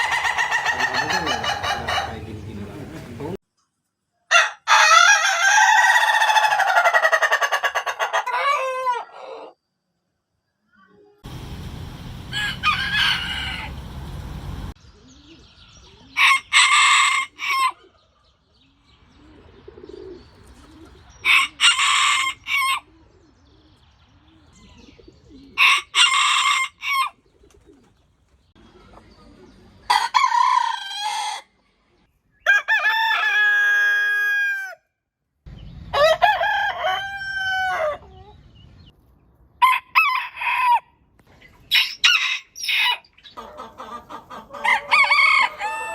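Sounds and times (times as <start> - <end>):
roosters crowing: 0.0 - 3.4, 4.3 - 9.6, 11.2 - 14.8, 16.1 - 18.0, 20.7 - 23.0, 25.3 - 27.3, 29.9 - 31.6, 32.4 - 34.9, 35.9 - 38.3, 39.6 - 41.1, 41.7 - 45.9.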